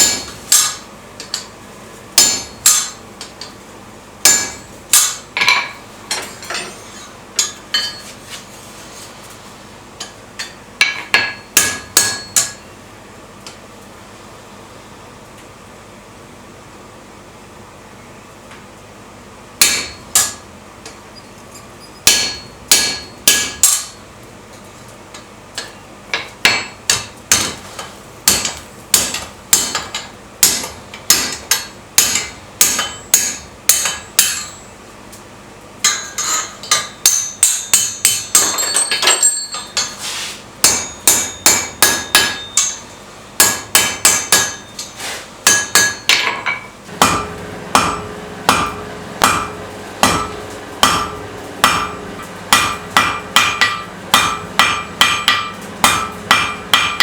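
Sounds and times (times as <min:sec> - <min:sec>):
hammer striking steel on anvil: 0:00.0 - 0:01.5, 0:02.2 - 0:03.5, 0:04.2 - 0:08.1, 0:10.0 - 0:12.6, 0:19.6 - 0:21.0, 0:22.1 - 0:24.0, 0:25.6 - 0:27.6, 0:28.2 - 0:34.7, 0:35.8 - 0:40.0, 0:40.6 - 0:57.0.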